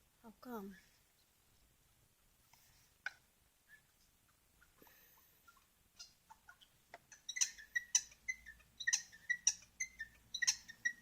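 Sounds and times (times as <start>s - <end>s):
bird chirping sharply: 7.1s - 11.0s.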